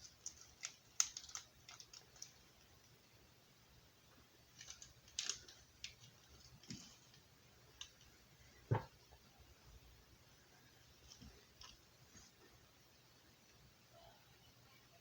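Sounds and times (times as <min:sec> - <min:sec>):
thump: 0:08.7 - 0:08.9.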